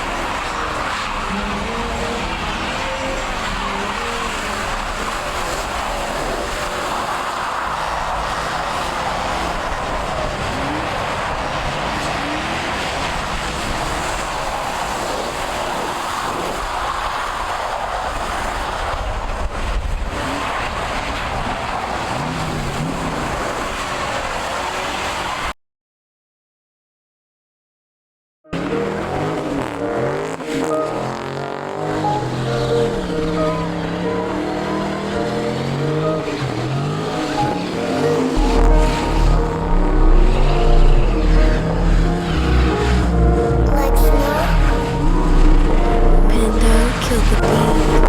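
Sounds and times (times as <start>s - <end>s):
vehicle engine revving: 0.0s - 15.6s, 28.6s - 48.0s.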